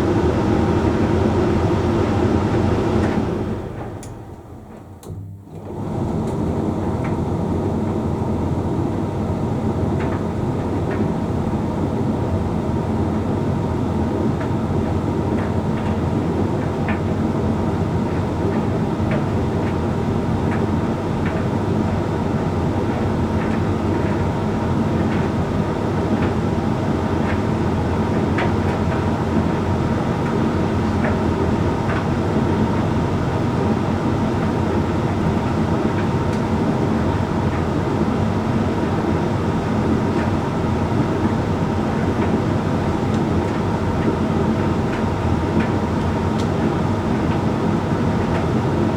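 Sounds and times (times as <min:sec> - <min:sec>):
tumble dryer humming: 0:00.0 - 0:08.5, 0:25.3 - 0:48.9.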